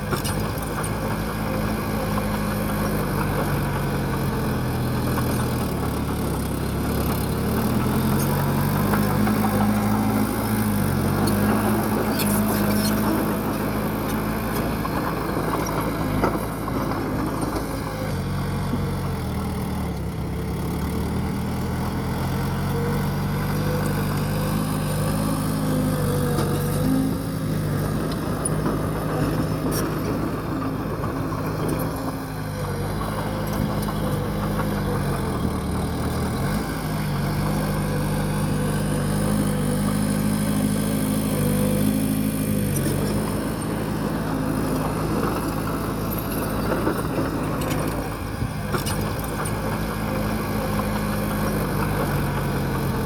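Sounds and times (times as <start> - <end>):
bulldozer diesel engine: 0.0 - 53.0.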